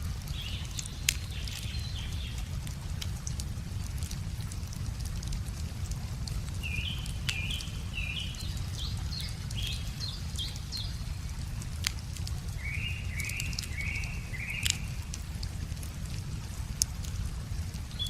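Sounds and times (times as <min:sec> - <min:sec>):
wood fire crackling: 0:00.0 - 0:18.0
songbird chirping: 0:00.1 - 0:03.1, 0:06.5 - 0:15.2.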